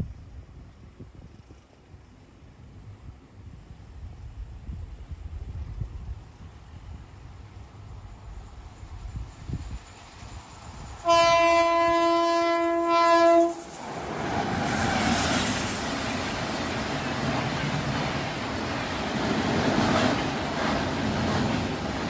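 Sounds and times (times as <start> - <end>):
train rushing past: 6.9 - 22.0
train horn blast: 11.0 - 13.7.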